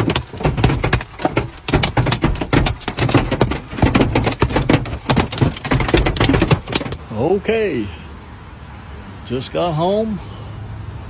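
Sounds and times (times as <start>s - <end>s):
dense irregular crackling: 0.0s - 7.0s.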